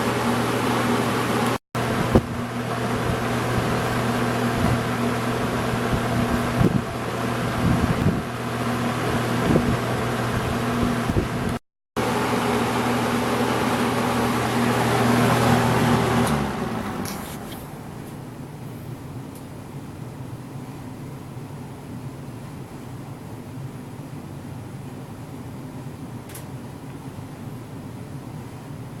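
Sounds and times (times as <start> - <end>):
box fan running: 0.0 - 29.0.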